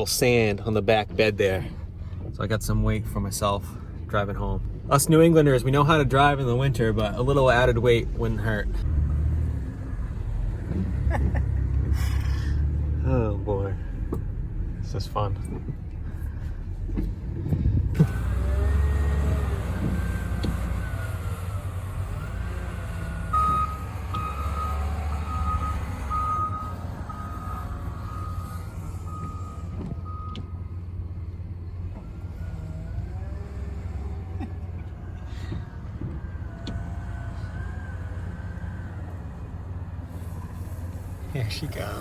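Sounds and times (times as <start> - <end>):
heavy machine engine rumbling: 0.0 - 42.0
reversing alarm beeping: 23.3 - 30.6.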